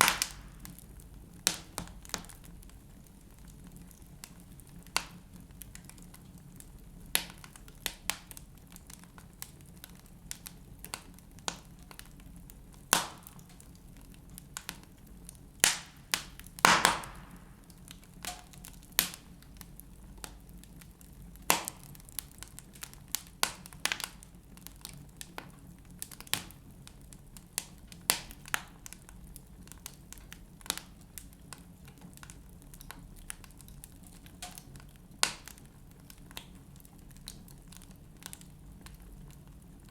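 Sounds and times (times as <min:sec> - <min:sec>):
fire hissing: 0:00.0 - 0:00.9, 0:15.7 - 0:17.8
logs crackling and popping: 0:00.0 - 0:39.9.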